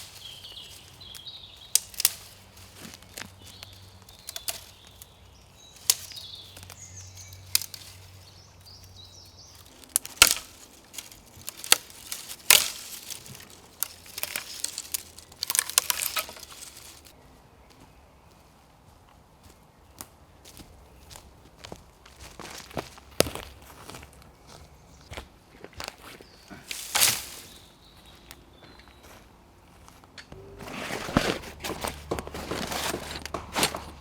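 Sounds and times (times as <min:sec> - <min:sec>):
dry twigs snapping: 0:00.0 - 0:17.1, 0:26.6 - 0:28.4
dead wood rustling: 0:00.0 - 0:17.2, 0:25.8 - 0:28.2, 0:30.3 - 0:34.0.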